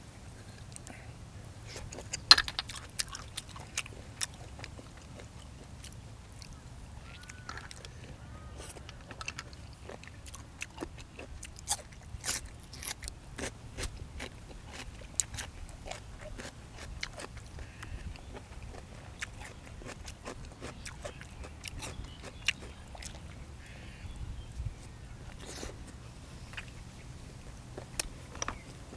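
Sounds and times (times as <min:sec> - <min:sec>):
chewing and crunching: 0:00.4 - 0:23.8, 0:24.4 - 0:28.9.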